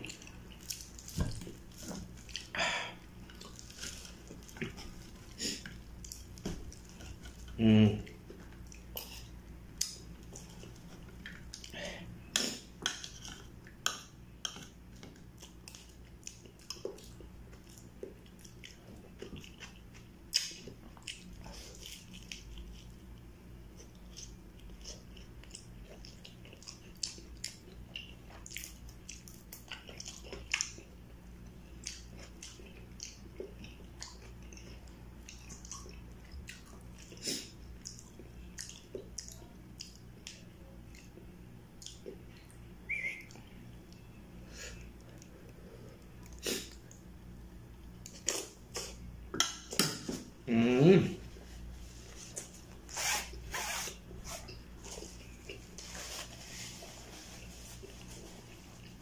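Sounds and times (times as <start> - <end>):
steady low hum: 0.0 - 59.0
close chewing and biting: 14.5 - 43.4.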